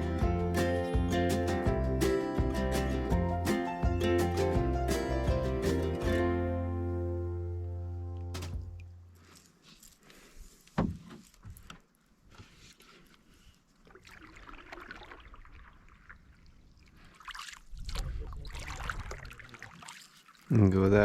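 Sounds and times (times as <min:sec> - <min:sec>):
sharp knock: 0:08.4 - 0:08.8
paddle strokes swishing in water: 0:12.3 - 0:20.5.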